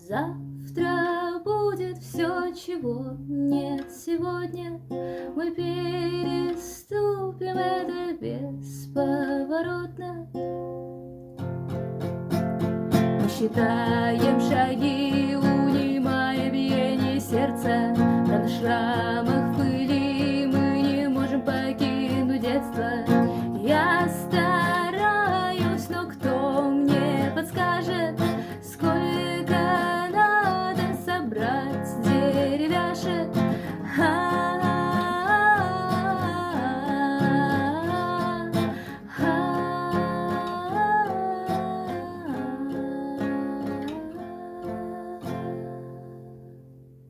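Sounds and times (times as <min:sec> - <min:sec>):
woman singing: 0:00.0 - 0:10.4, 0:13.0 - 0:46.6
acoustic guitar strumming: 0:10.5 - 0:47.0.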